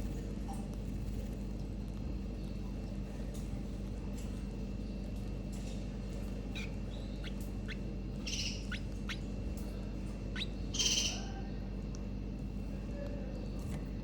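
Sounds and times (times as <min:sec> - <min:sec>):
steady low hum: 0:00.0 - 0:14.0
canaries chirping: 0:06.2 - 0:11.5
raspy bird calls: 0:06.5 - 0:09.4, 0:10.2 - 0:11.5.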